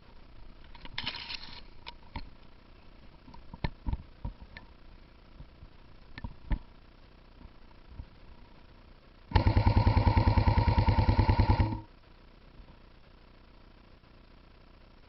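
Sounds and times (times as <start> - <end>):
brief rustle: 0.7 - 2.2.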